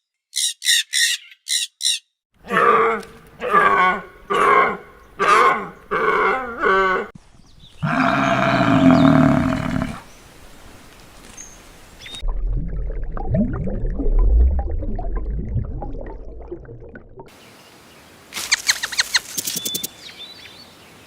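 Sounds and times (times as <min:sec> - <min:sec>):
animal wavering calls: 0:02.5 - 0:07.1, 0:07.8 - 0:10.0
low rumbling: 0:12.2 - 0:17.3.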